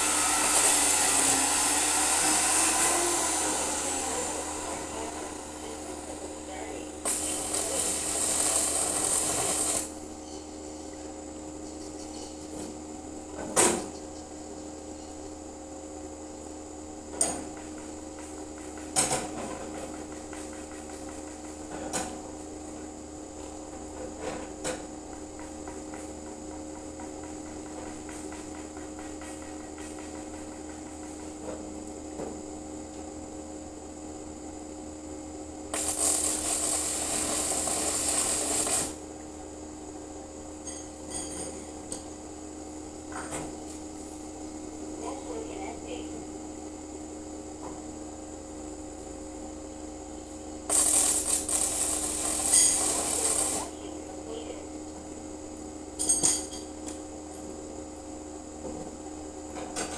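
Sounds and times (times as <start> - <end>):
arc welding hiss: 0.0 - 10.0, 35.7 - 39.2, 50.2 - 54.6
electrical hum: 0.0 - 15.2, 33.2 - 56.0.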